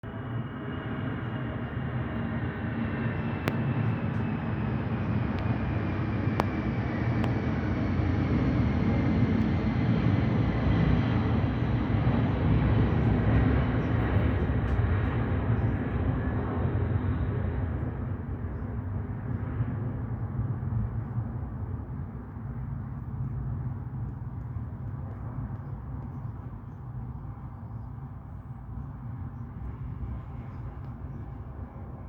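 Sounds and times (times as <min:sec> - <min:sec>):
jet engine roar: 0:00.1 - 0:23.1.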